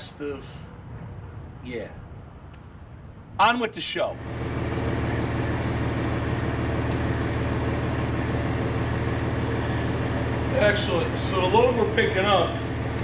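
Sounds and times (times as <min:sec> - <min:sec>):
diesel truck engine running: 0:04.1 - 0:13.0.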